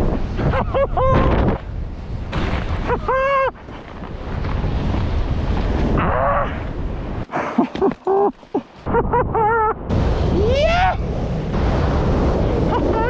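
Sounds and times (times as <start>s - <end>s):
wind buffeting microphone: 0.0s - 13.0s
person yelling: 10.4s - 11.0s.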